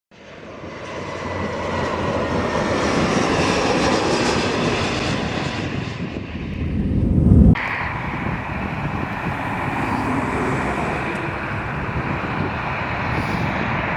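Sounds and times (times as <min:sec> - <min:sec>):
jet engines roaring: 0:07.6 - 0:13.9.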